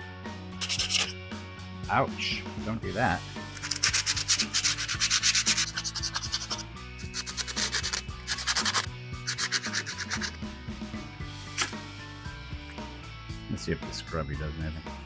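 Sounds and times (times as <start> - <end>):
background music: 0.0 - 15.0
sandpaper rasping on metal: 0.6 - 1.1, 3.6 - 10.4, 11.6 - 11.8.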